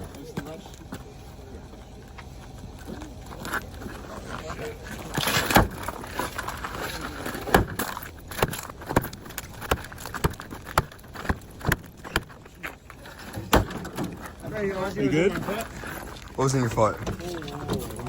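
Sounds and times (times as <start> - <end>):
bangs on truck body: 5.4 - 5.9, 7.4 - 12.4, 13.4 - 14.1.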